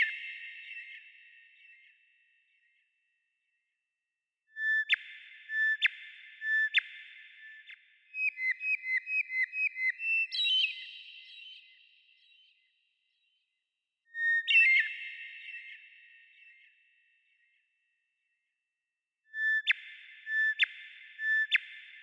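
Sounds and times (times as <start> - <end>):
songbird singing: 7.6 - 12.7.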